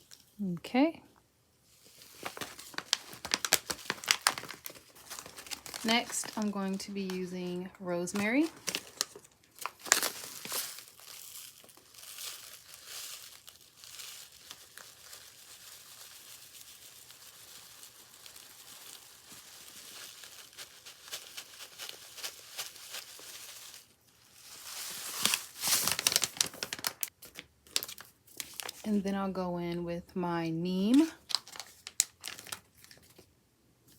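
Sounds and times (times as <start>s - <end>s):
dried herbs crinkling and rustling: 1.7s - 29.0s, 30.8s - 33.3s.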